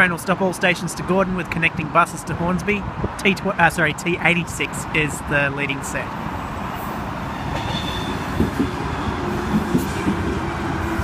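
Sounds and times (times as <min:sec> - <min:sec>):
electric train rumbling: 0:04.4 - 0:11.0.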